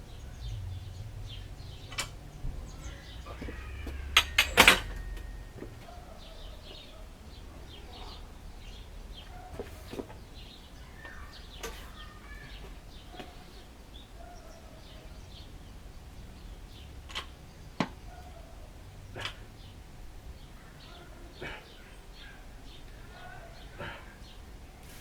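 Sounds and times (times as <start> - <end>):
low background rumble: 0.0 - 9.5
small birds chirping: 0.0 - 25.0.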